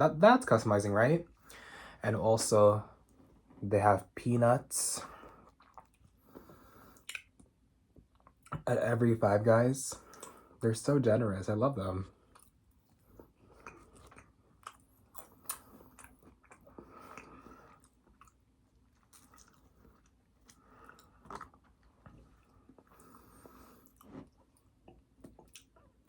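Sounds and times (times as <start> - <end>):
person chewing food: 5.1 - 8.6, 12.2 - 26.0
wet mouth clicks: 5.5 - 7.4, 13.6 - 17.3.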